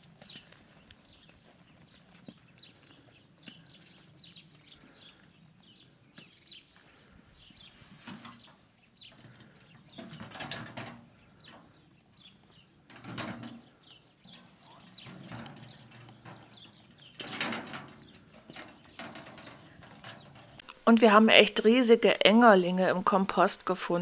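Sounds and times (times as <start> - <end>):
rustling noise: 6.7 - 9.4.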